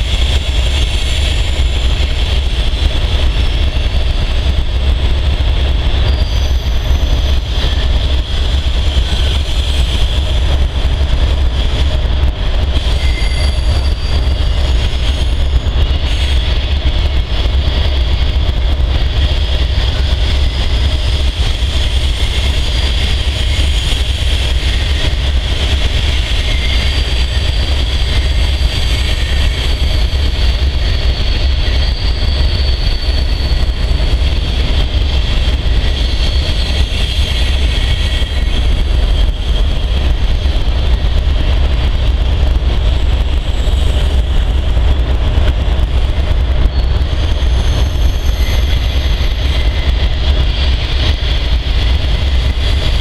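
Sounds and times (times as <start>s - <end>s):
train wheels rumbling over rails: 0.0s - 53.0s
thin wheel squeal: 12.8s - 15.3s.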